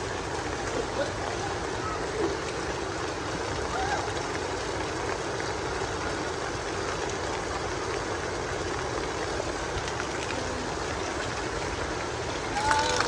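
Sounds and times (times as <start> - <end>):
heavy rain hissing: 10.4 - 13.0.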